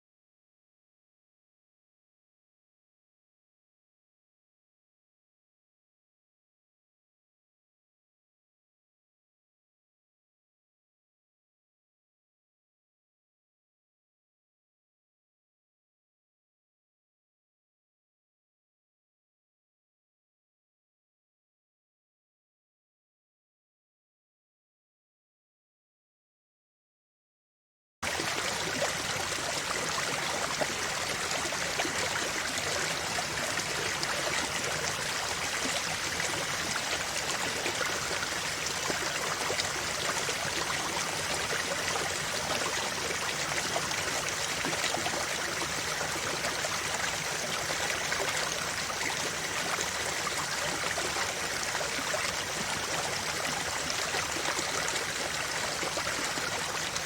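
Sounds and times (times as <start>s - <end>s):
river water flowing over stones: 28.0s - 57.0s.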